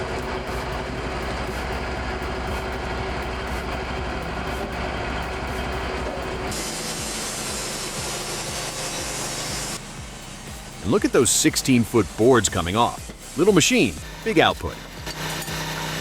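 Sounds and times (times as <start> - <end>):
sawmill machinery drone: 0.0 - 16.0
bright hiss: 6.4 - 16.0.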